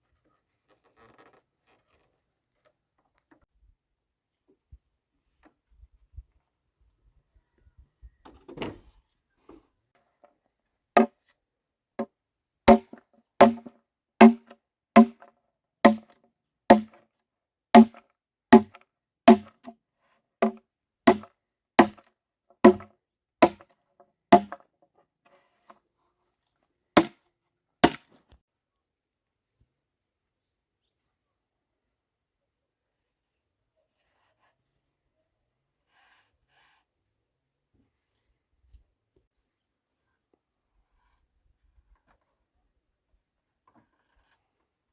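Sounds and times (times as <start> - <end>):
tool striking wood: 12.7 - 15.3, 15.9 - 17.0, 17.8 - 19.7, 20.4 - 22.0, 22.6 - 23.7, 24.3 - 24.6, 27.8 - 28.0.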